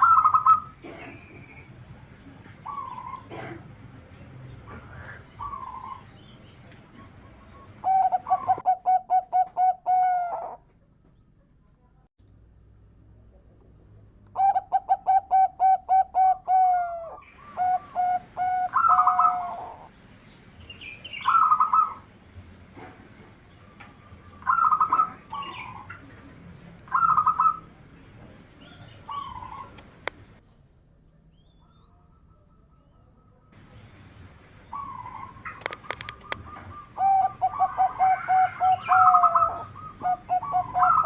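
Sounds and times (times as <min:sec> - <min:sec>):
dove cooing: 0:00.0 - 0:01.5, 0:02.5 - 0:03.8, 0:04.6 - 0:06.1, 0:06.9 - 0:10.7, 0:14.4 - 0:19.9, 0:21.2 - 0:22.1, 0:23.6 - 0:26.2, 0:26.9 - 0:27.8, 0:28.6 - 0:30.0, 0:34.7 - 0:41.0.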